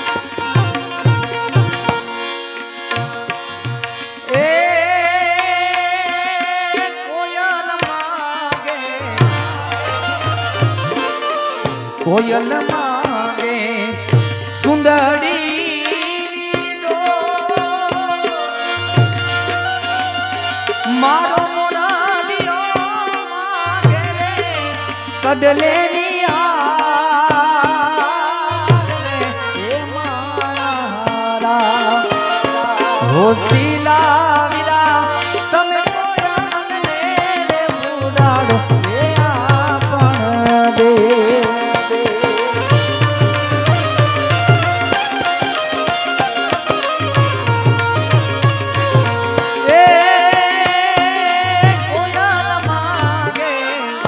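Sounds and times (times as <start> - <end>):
held melodic accompaniment: 0.0 - 54.0
tabla playing: 0.0 - 54.0
tabla strokes: 32.0 - 53.4.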